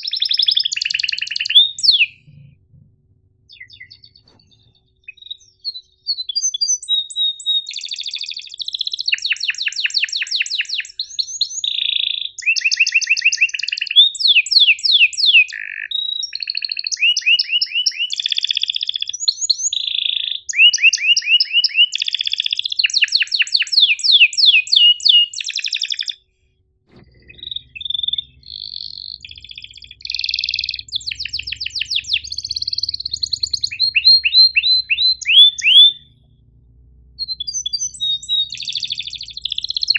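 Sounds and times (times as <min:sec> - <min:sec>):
canary singing trills: 0:00.0 - 0:02.5, 0:03.5 - 0:26.2, 0:27.0 - 0:36.4, 0:37.0 - 0:39.9
faint low hum: 0:01.6 - 0:05.8, 0:26.3 - 0:39.9.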